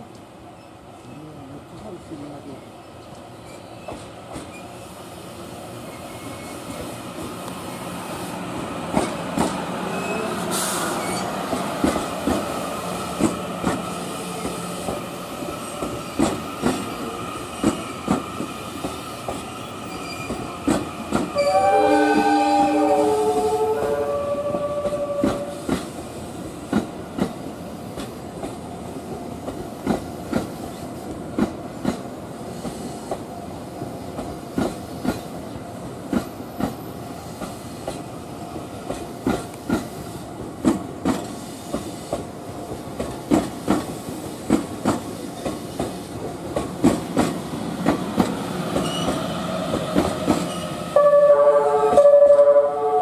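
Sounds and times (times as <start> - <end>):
low train rumble: 0.0 - 53.0
train horn: 21.4 - 25.6, 50.8 - 53.0.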